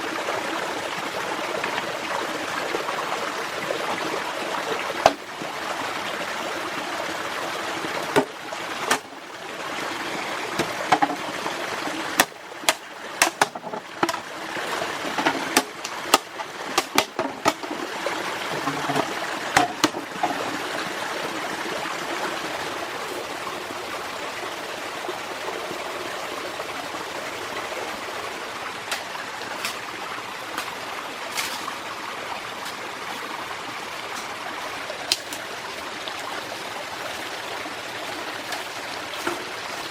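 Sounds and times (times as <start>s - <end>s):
stream rushing: 0.0s - 39.9s
sharp clicks and knocks: 11.8s - 14.2s, 15.1s - 17.8s.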